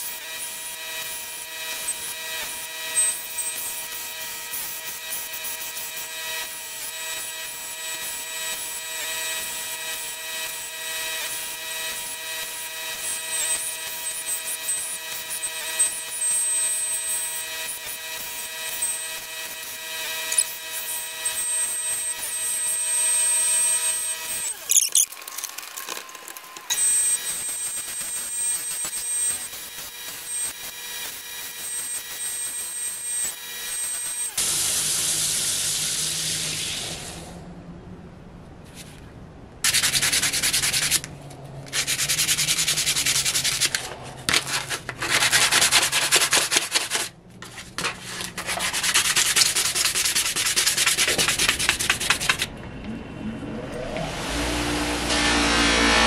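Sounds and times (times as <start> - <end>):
sanding in rasping passes: 0.0 - 34.4, 39.6 - 41.1, 41.7 - 52.5
small motor humming: 0.0 - 37.3.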